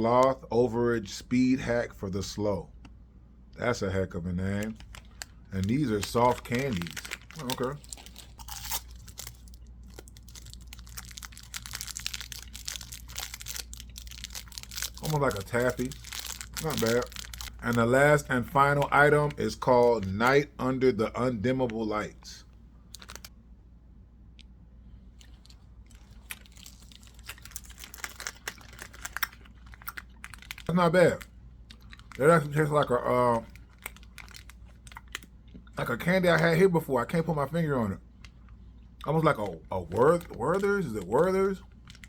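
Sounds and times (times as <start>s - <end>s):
candy wrapper crinkling: 4.4s - 23.3s, 25.2s - 42.0s
candy being eaten: 4.6s - 20.1s, 25.2s - 36.4s, 38.2s - 42.0s.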